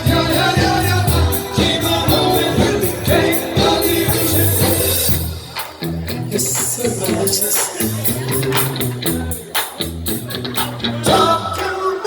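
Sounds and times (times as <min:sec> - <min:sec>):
singing: 0:00.0 - 0:05.3, 0:11.0 - 0:12.0
band playing music: 0:00.0 - 0:12.0.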